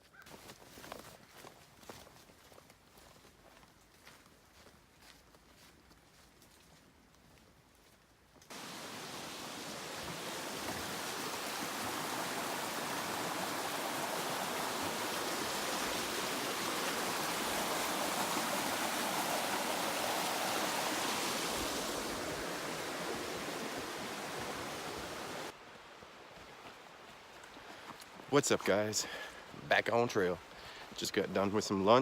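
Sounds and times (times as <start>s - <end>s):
mountain stream flowing: 8.5s - 32.0s.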